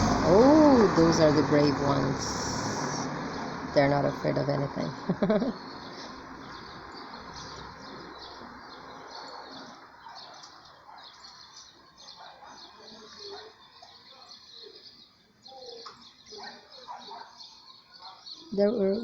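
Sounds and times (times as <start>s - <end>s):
low steady rumble: 0.0s - 5.5s
songbirds chirping: 0.0s - 19.0s.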